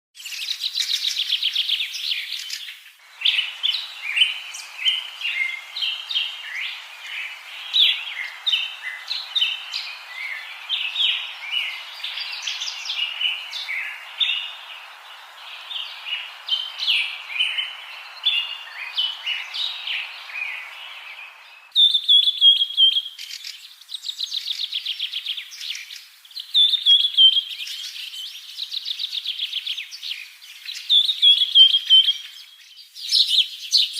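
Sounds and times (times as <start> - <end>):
steady hiss: 0.3 - 22.4.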